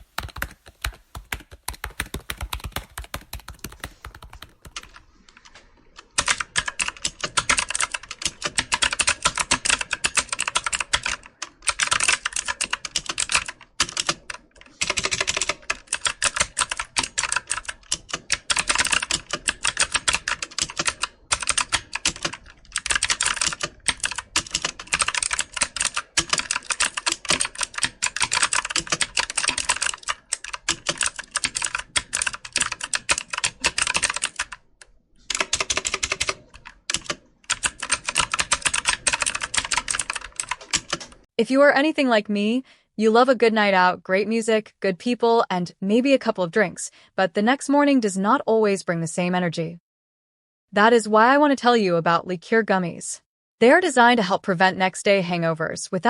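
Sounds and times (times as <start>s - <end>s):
typing on computer keyboard: 0.0s - 41.3s.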